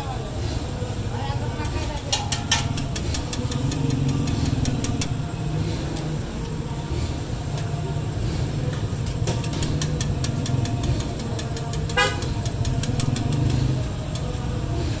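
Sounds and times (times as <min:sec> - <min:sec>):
street traffic rumble: 0:00.0 - 0:15.0
sharp taps: 0:02.0 - 0:05.2, 0:09.2 - 0:14.3.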